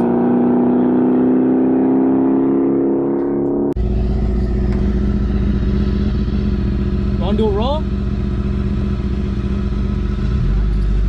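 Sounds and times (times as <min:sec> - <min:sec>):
car engine and exhaust drone: 0:00.0 - 0:11.0.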